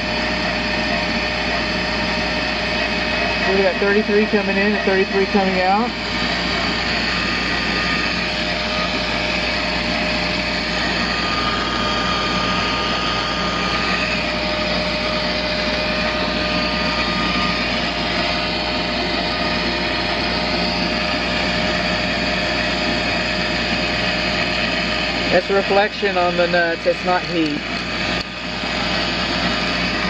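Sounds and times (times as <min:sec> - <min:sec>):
pool pump motor whirring: 0:00.0 - 0:30.0.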